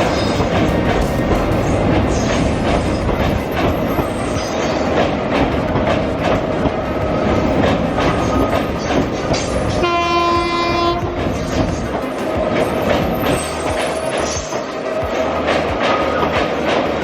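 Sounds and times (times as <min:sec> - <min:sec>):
train rumbling and clacking: 0:00.0 - 0:17.0
train horn: 0:09.3 - 0:11.5.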